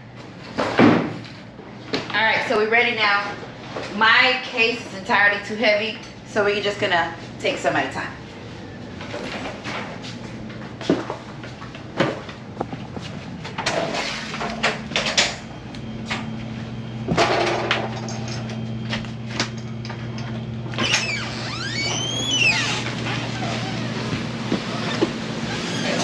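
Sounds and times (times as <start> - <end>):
steady low hum: 0.0 - 26.0
sliding squeak: 20.8 - 26.0.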